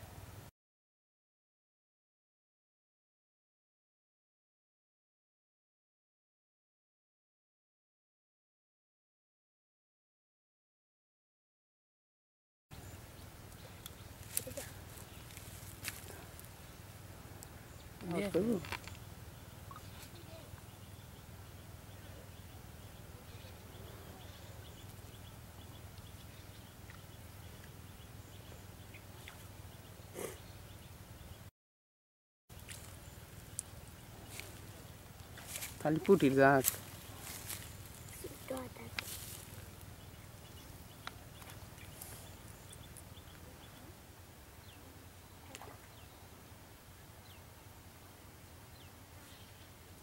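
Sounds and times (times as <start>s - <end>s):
bird chirping: 17.5s - 31.5s, 32.5s - 43.9s.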